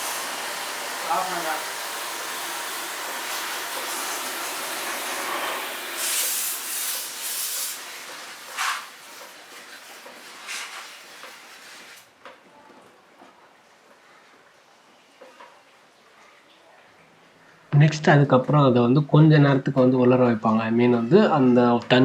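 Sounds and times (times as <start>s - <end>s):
water jet spraying: 0.0s - 12.1s.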